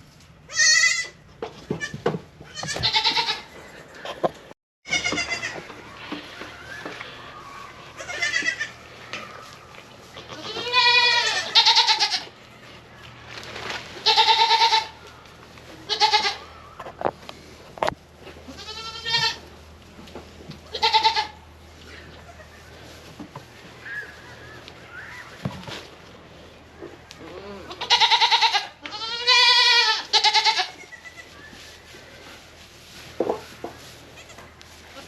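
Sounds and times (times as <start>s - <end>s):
goats bleating: 0.5s - 1.2s, 2.5s - 4.2s, 4.9s - 12.8s, 14.0s - 15.1s, 15.7s - 16.6s, 18.4s - 19.5s, 20.7s - 22.9s, 27.1s - 31.4s, 34.0s - 35.0s.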